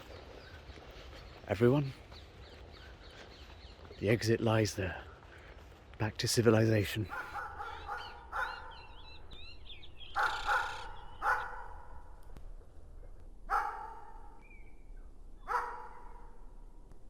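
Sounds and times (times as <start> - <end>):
dog barking: 7.1 - 8.9, 10.1 - 12.0, 13.5 - 14.4, 15.5 - 16.3
faint bird chirps: 14.2 - 16.3.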